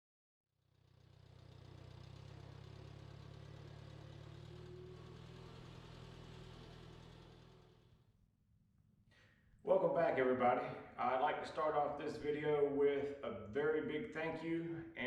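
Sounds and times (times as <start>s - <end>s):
engine idling: 0.6s - 8.1s.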